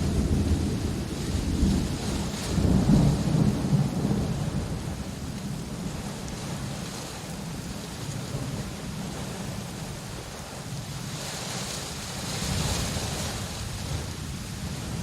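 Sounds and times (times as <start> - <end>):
low thunder rumble: 0.0 - 11.1, 12.1 - 15.0
rain hissing: 0.0 - 15.0.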